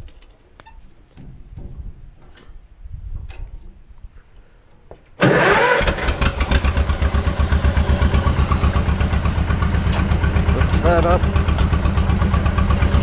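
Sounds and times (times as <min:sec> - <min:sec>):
tractor engine starting and idling: 0:05.2 - 0:13.0.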